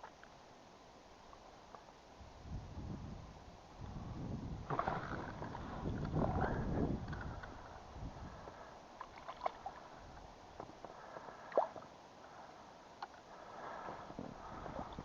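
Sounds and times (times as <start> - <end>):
faint water sloshing: 4.6 - 15.0.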